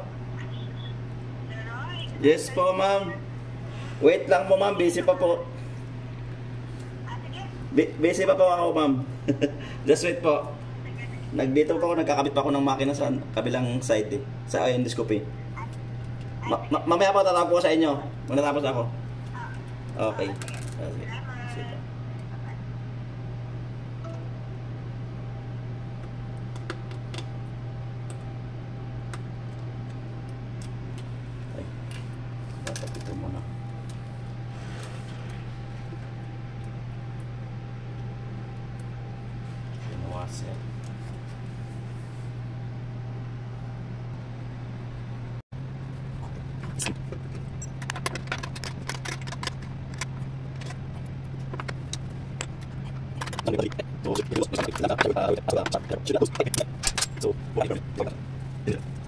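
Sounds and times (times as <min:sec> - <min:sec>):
steady low hum: 0:00.0 - 0:59.0
clicks of tools being handled: 0:51.5 - 0:57.3.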